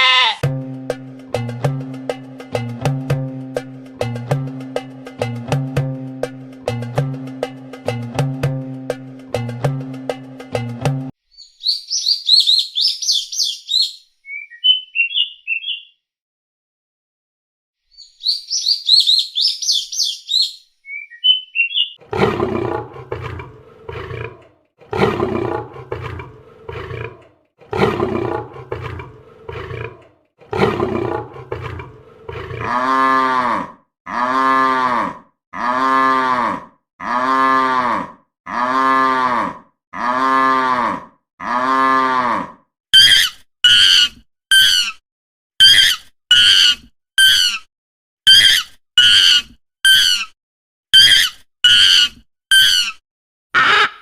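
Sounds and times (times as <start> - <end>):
repeated pitched animal calls: 0.0 - 0.4, 21.2 - 45.0, 45.6 - 47.7, 48.3 - 50.4, 51.0 - 53.0, 53.6 - 54.0
high bird chirping: 11.3 - 16.0, 17.9 - 22.0
animal roaring: 22.0 - 42.6.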